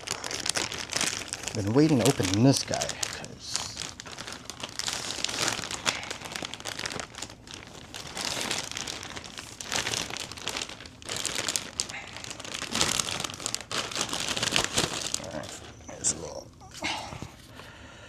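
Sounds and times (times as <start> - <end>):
packaging crinkling and rustling: 0.0 - 17.8.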